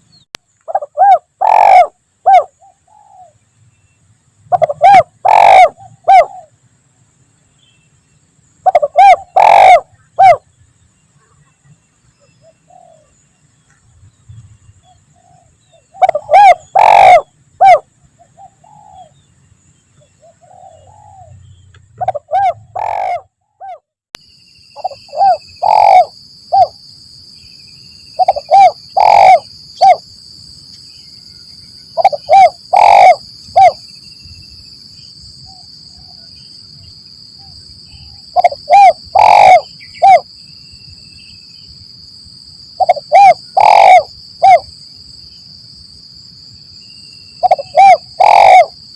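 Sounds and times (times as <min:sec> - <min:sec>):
dove cooing: 0:00.7 - 0:03.4, 0:04.5 - 0:06.5, 0:08.6 - 0:10.4, 0:12.4 - 0:13.1, 0:15.2 - 0:19.2, 0:20.2 - 0:21.3, 0:22.0 - 0:23.8, 0:24.8 - 0:26.7, 0:28.2 - 0:30.0, 0:32.0 - 0:33.8, 0:38.3 - 0:40.2, 0:42.8 - 0:44.6, 0:47.4 - 0:48.8.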